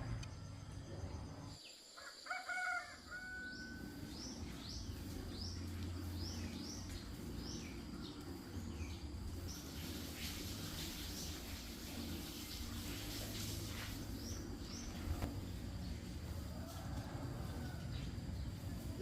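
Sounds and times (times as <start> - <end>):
steady low hum: 0.0 - 1.6, 3.5 - 19.0
rooster crowing: 2.0 - 4.2, 16.3 - 18.3
small bird chirping: 3.4 - 11.6.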